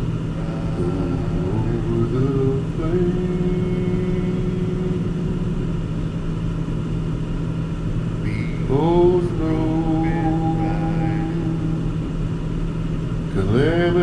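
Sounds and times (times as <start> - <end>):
held pitched notes: 0.0 - 6.3.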